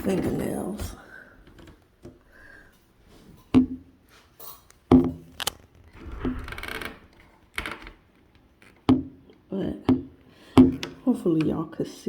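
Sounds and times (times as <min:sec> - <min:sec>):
scraping rattle: 0:05.2 - 0:07.5.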